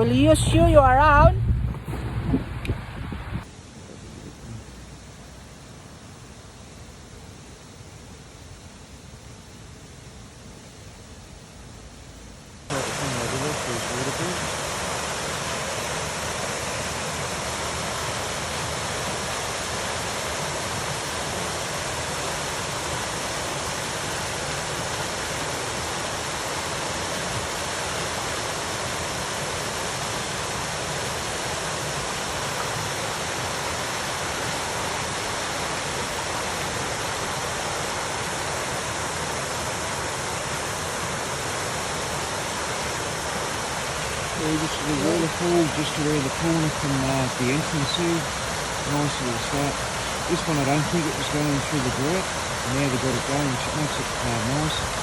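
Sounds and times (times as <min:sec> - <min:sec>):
water pouring over waterfall: 0:12.7 - 0:55.0.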